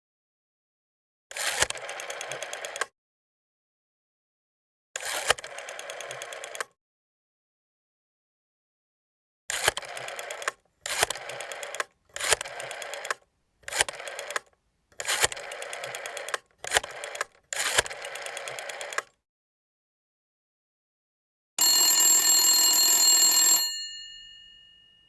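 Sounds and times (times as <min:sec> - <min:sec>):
rotary telephone dial whirring: 0:01.4 - 0:02.9, 0:05.0 - 0:06.7, 0:09.5 - 0:19.2.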